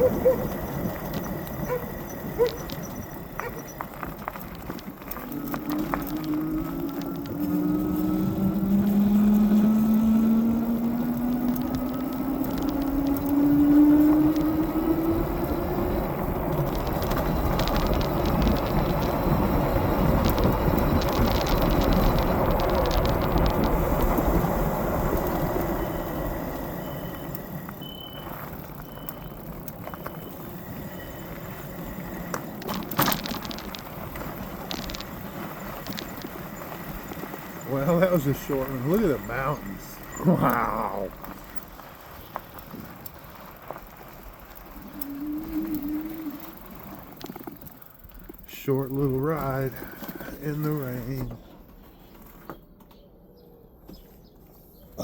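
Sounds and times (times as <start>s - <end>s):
wind and tyre noise: 0.0s - 55.0s
electric motor whine: 4.3s - 40.1s.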